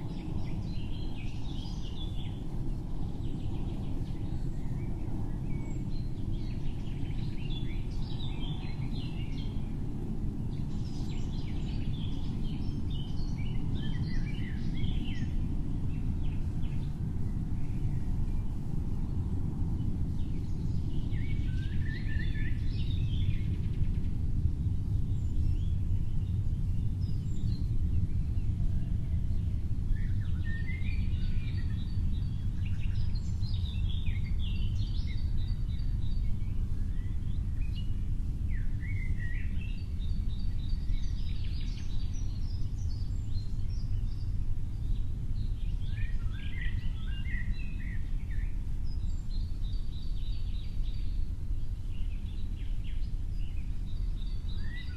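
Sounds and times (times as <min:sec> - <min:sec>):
low background rumble: 0:00.0 - 0:54.9
songbird chirping: 0:10.5 - 0:24.2, 0:24.8 - 0:54.9.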